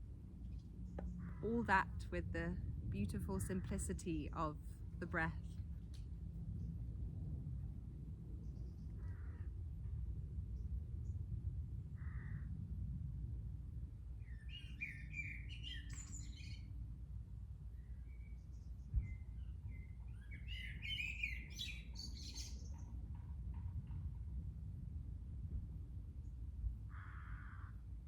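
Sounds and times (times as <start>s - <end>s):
steady low rumble: 0.0s - 20.8s, 22.6s - 28.0s
songbird chirping: 14.2s - 16.7s, 17.8s - 23.0s.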